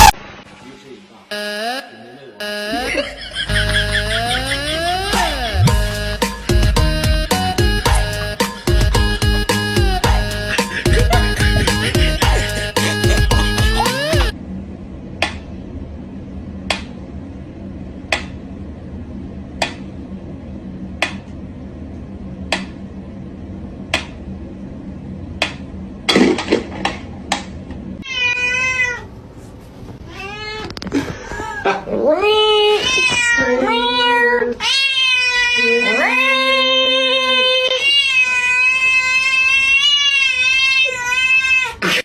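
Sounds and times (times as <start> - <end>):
steady hum: 0.0 - 28.0
cat meowing: 28.0 - 29.1, 30.1 - 30.7, 32.1 - 41.8.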